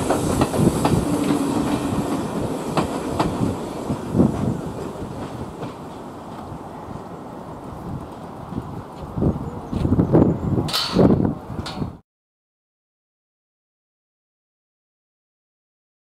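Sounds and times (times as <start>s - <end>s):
train coaches rolling past: 0.0s - 12.0s
wheels clicking over rail joints: 10.7s - 12.0s.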